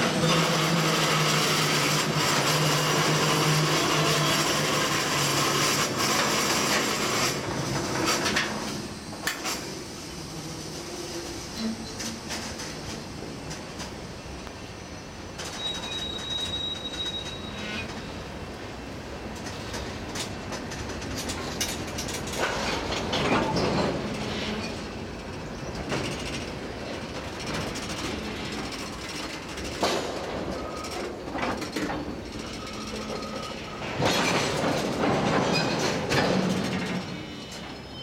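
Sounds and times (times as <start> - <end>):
train wheels clattering over joints: 0.0 - 10.1, 10.7 - 14.2, 19.1 - 38.0
high wheel squeal: 0.2 - 5.8, 14.8 - 18.2, 32.4 - 33.8, 36.9 - 38.0.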